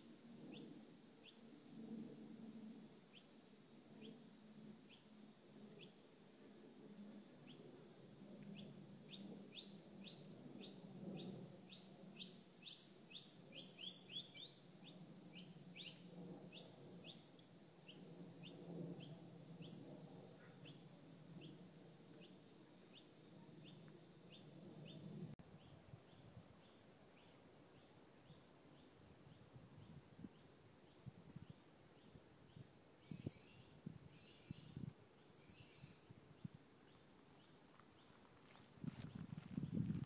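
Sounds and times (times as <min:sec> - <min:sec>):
bird chirping: 0:32.0 - 0:36.1
faint low rumble: 0:37.3 - 0:40.0.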